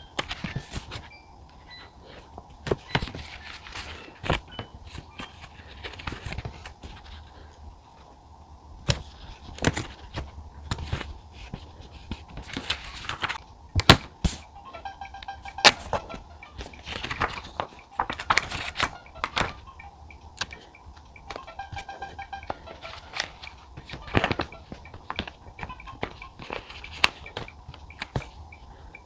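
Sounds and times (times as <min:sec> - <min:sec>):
faint background music: 0:00.0 - 0:29.0
paper rustling: 0:00.2 - 0:01.2, 0:02.0 - 0:08.1, 0:08.8 - 0:14.4, 0:15.6 - 0:19.7, 0:20.4 - 0:28.9.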